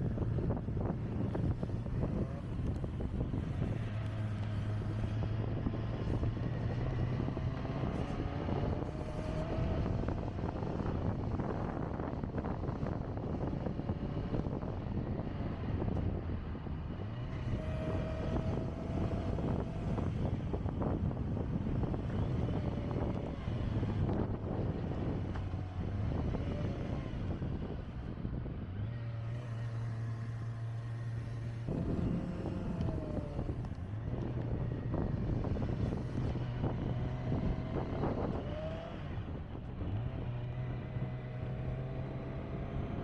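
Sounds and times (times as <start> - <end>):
vehicle engine running: 0.0 - 43.0.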